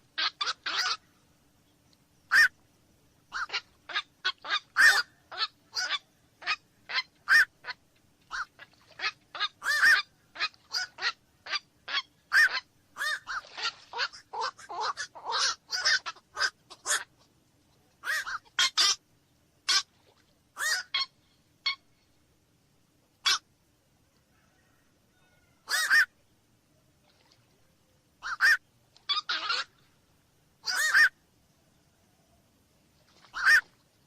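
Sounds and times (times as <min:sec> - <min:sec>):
night herons calling: 0:00.1 - 0:01.2, 0:02.3 - 0:02.6, 0:03.3 - 0:17.2, 0:18.0 - 0:19.0, 0:19.6 - 0:22.0, 0:23.2 - 0:23.5, 0:24.4 - 0:26.1, 0:28.2 - 0:29.9, 0:30.6 - 0:31.2, 0:33.2 - 0:33.8.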